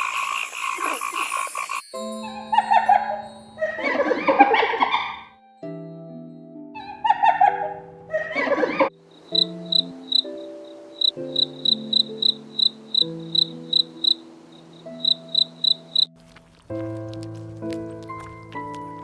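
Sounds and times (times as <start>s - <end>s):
cricket chirping: 0.0s - 3.4s, 9.0s - 16.1s
soft background music: 1.8s - 19.0s.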